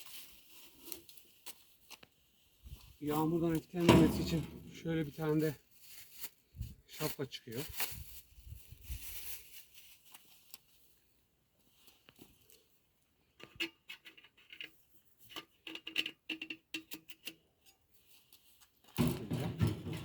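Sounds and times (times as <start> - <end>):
soft rustle: 0.0 - 3.8, 4.6 - 12.9, 17.8 - 18.9.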